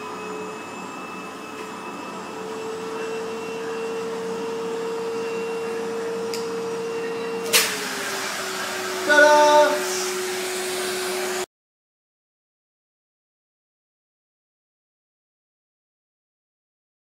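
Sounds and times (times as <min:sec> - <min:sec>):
vacuum cleaner whining: 0:00.0 - 0:11.5.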